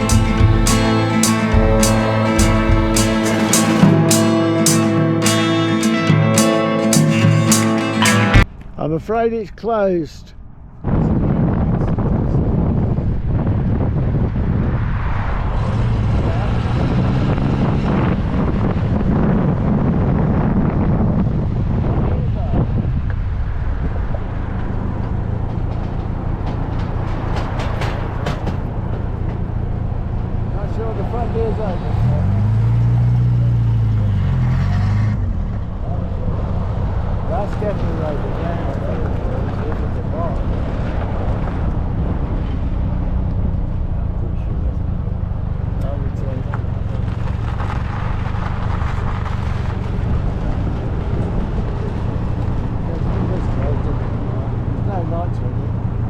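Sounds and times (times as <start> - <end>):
car engine running at low revs: 0.0 - 4.0
car engine drone: 0.0 - 9.0, 11.8 - 56.0
road noise: 0.0 - 56.0
short sharp clicks: 0.1 - 8.7
wind noise: 10.3 - 30.5, 46.6 - 54.9.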